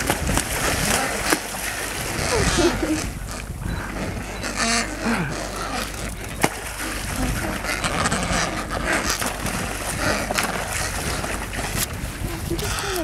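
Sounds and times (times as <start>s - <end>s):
penguins splashing into water: 0.0s - 3.1s, 6.1s - 13.0s
low rumble on microphone: 0.0s - 13.0s
sea and wind noise: 0.0s - 13.0s.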